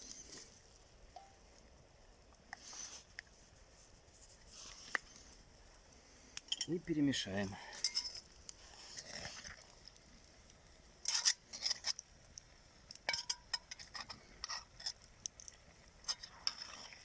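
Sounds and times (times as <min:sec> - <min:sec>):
utensil scraping cooking pot: 0:07.7 - 0:09.9, 0:11.0 - 0:17.0.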